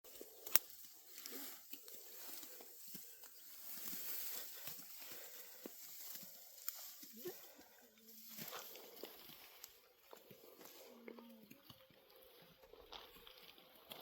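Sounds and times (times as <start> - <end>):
rice stalks rustling and snapping: 0.1 - 10.8.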